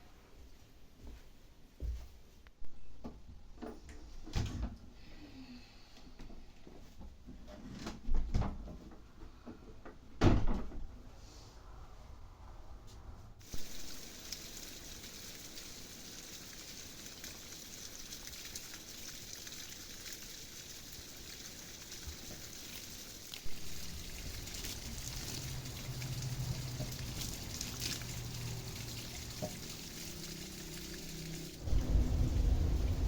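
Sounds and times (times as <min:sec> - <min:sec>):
water falling and trickling: 0:13.4 - 0:33.0.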